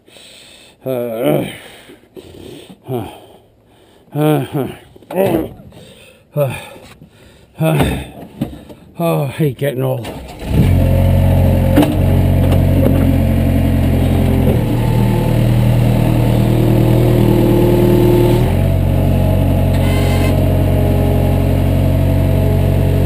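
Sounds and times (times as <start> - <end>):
engine running: 10.0 - 23.0.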